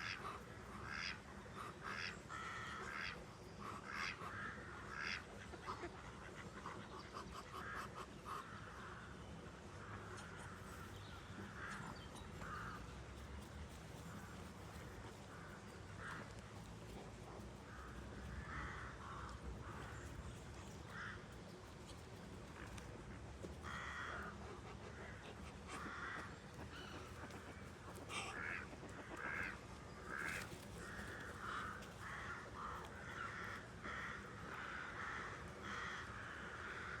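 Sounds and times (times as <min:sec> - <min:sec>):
low background hum: 0:00.1 - 0:37.0
birds calling harshly: 0:23.6 - 0:37.0.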